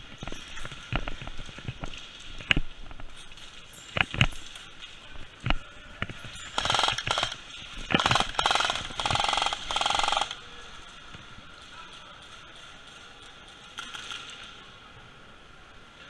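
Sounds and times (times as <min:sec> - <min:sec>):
airsoft gun firing bursts: 0:06.6 - 0:10.4.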